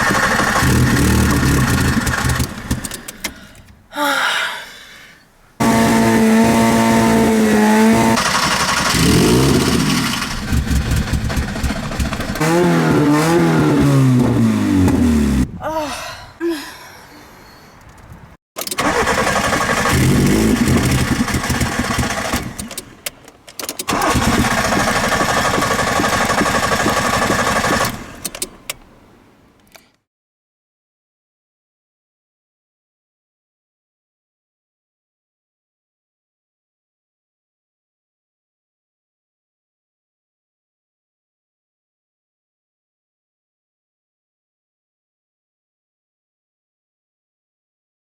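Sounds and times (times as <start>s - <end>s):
engine revving: 0.0s - 2.9s, 5.6s - 15.5s, 18.8s - 22.7s, 23.9s - 28.2s
car engine struggling to start: 0.0s - 3.6s, 5.6s - 15.5s, 18.6s - 28.8s.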